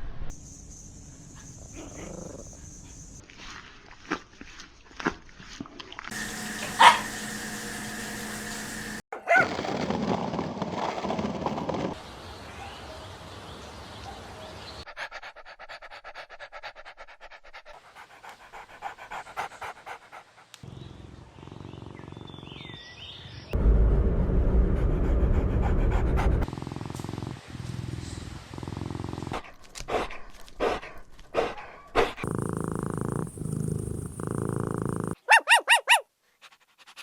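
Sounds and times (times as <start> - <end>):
puppy panting: 6.1 - 7.3, 14.9 - 20.6, 25.4 - 27.1, 29.3 - 37.0
puppy yapping: 6.5 - 7.2, 9.2 - 9.5, 35.1 - 36.1.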